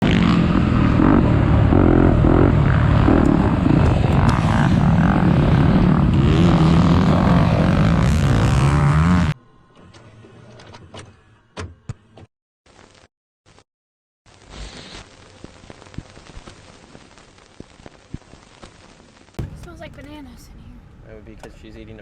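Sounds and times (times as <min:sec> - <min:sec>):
loud engine noise: 0:00.0 - 0:09.4.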